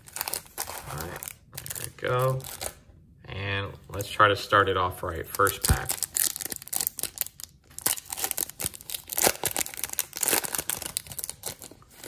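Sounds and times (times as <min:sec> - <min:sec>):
foil wrapper tearing and crinkling: 0:00.0 - 0:02.8, 0:05.4 - 0:12.0.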